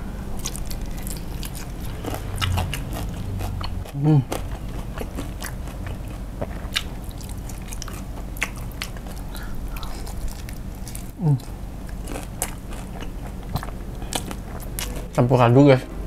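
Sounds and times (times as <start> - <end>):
crunchy chewing: 0.4 - 15.2
person vocalizing: 3.9 - 4.3, 11.2 - 11.4.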